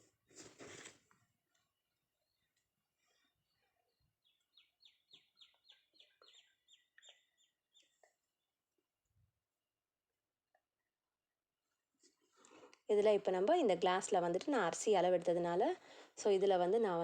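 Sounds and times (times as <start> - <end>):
faint high bird chirps: 3.2 - 8.1.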